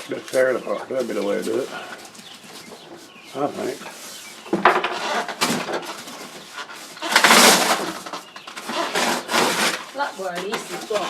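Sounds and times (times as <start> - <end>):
cardboard tearing: 4.9 - 11.0.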